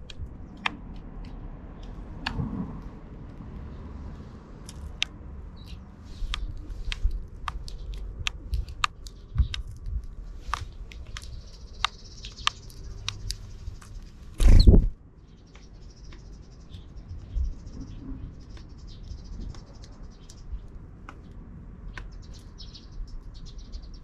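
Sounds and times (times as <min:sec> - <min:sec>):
birds pecking at seed: 0:00.0 - 0:03.5, 0:04.6 - 0:16.9.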